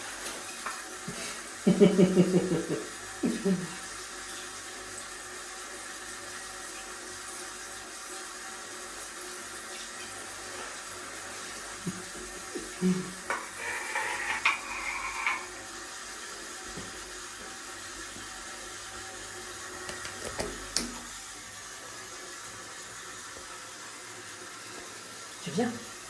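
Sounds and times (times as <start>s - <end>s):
shower water running: 0.0s - 26.0s.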